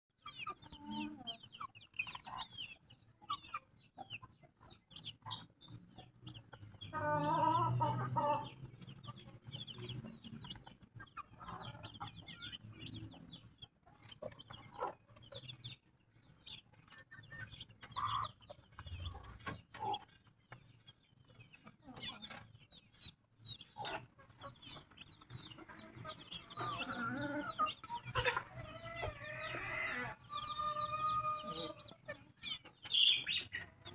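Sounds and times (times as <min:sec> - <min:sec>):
chickens clucking: 0:00.2 - 0:33.9
chicks peeping: 0:00.2 - 0:33.9
drawn-out hen calls: 0:00.2 - 0:33.9.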